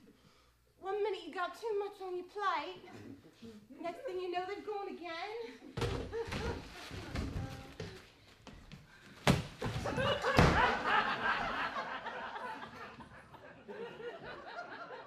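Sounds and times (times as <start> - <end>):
audience laughter: 9.7 - 15.0.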